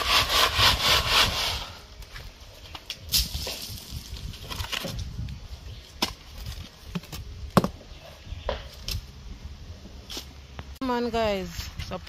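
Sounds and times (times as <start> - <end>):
wooden boards knocking and cracking: 6.0 - 7.8.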